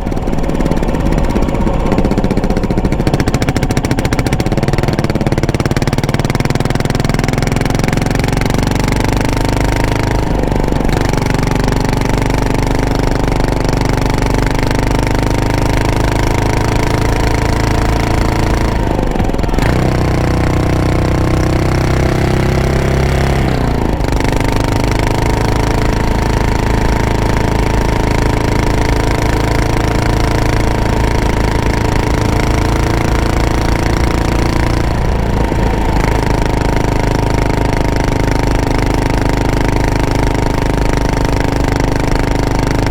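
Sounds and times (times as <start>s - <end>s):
motorcycle engine and exhaust: 0.0s - 42.9s.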